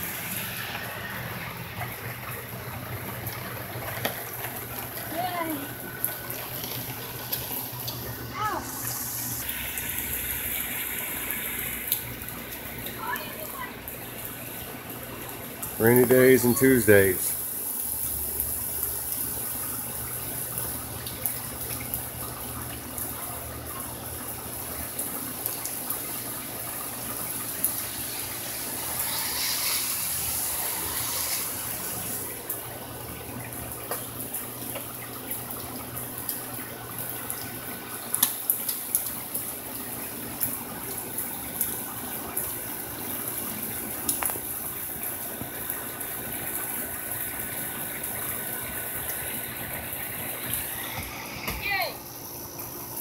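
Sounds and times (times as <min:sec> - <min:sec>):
steady rain hiss: 0:00.0 - 0:53.0
raindrops ticking: 0:00.1 - 0:08.6, 0:09.4 - 0:29.5, 0:30.1 - 0:53.0.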